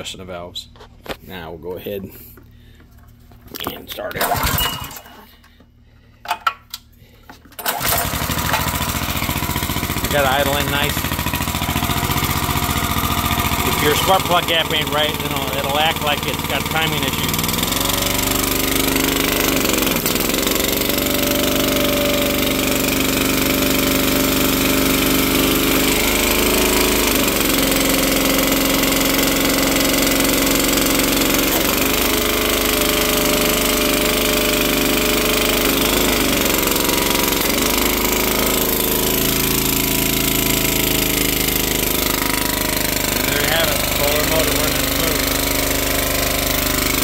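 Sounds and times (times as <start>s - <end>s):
small engine idling: 4.2s - 47.0s.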